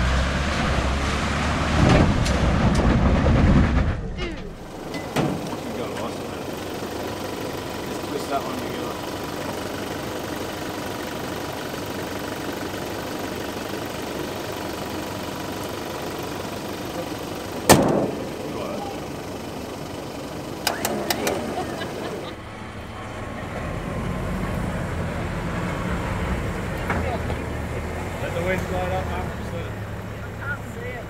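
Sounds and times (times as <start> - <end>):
vehicle engine running: 0.0 - 31.0
sharp knock: 17.7 - 18.3.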